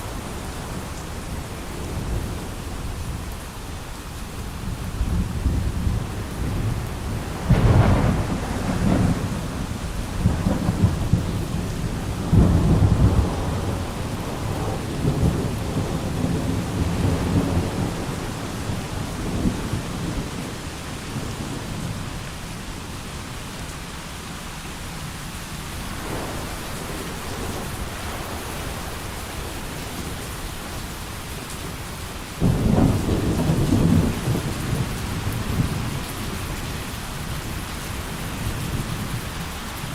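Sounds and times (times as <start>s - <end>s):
heavy rain: 0.0s - 39.9s
rolling thunder: 4.6s - 20.6s, 25.7s - 39.4s.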